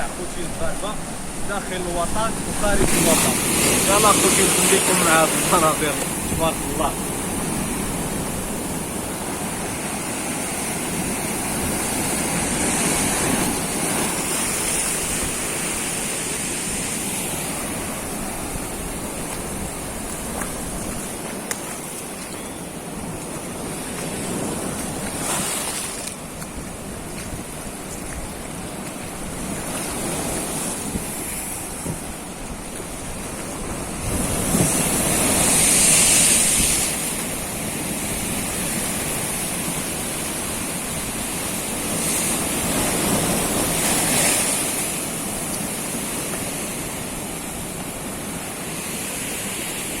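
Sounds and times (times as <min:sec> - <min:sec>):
sea waves washing ashore: 0:00.0 - 0:50.0
wind on microphone: 0:00.0 - 0:50.0.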